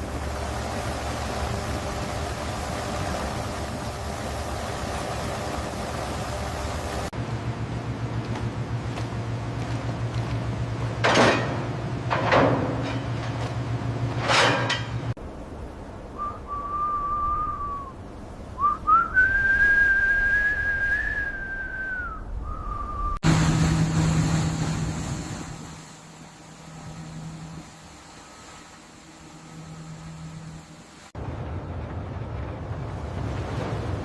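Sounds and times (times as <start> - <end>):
steady low machine hum: 0.0 - 19.0, 22.1 - 34.0
high pure whistle: 16.2 - 18.0, 18.6 - 23.2.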